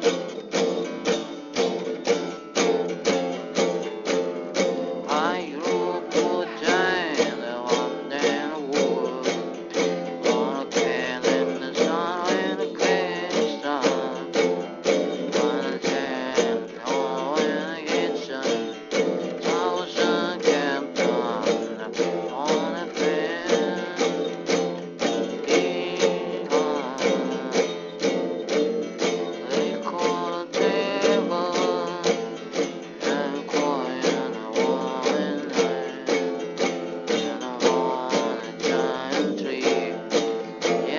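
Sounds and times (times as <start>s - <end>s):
strummed plucked string instrument: 0.0s - 40.9s.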